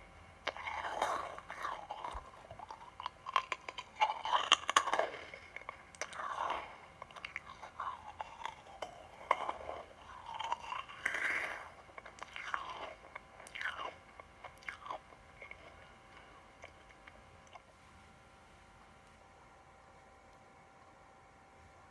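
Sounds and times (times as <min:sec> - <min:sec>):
chewing crunchy sweets: 0:00.4 - 0:17.8.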